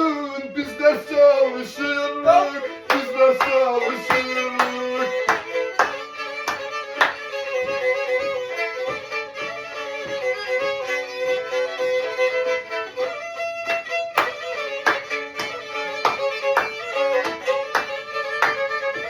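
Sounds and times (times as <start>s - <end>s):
bowed fiddle melody: 0.0s - 19.0s
light rhythmic knocks: 0.6s - 19.0s.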